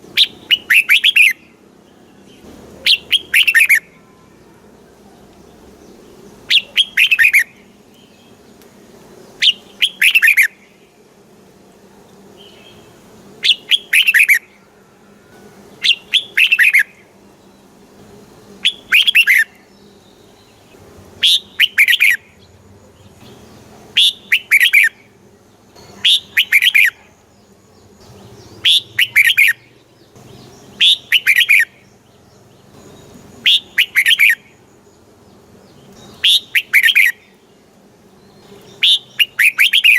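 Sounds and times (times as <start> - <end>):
bird warbling song: 0.0 - 4.5, 5.2 - 8.6, 9.2 - 10.9, 12.3 - 14.6, 15.2 - 17.7, 18.4 - 39.9.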